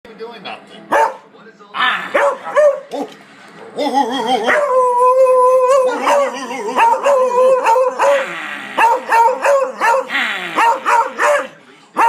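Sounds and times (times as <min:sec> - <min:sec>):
dog howling and barking: 0:02.1 - 0:03.1, 0:03.8 - 0:11.6.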